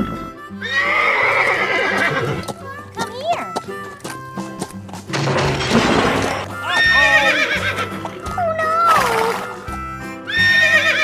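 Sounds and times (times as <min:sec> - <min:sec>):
background music: 0:00.0 - 0:11.0
cartoon horse whinnying: 0:00.6 - 0:02.4, 0:06.6 - 0:09.4, 0:10.3 - 0:11.0.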